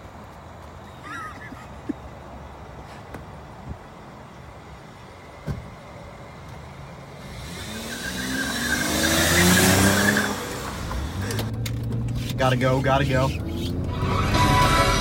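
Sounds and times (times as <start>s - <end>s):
car engine accelerating: 7.2s - 15.0s
tyres squealing: 7.6s - 15.0s.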